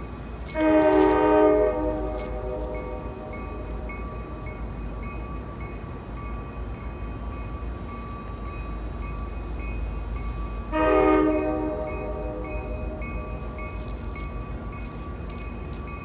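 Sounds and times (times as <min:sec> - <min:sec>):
crossing bell ringing: 0:00.1 - 0:16.0
locomotive horn blast: 0:00.5 - 0:03.8, 0:10.7 - 0:13.6.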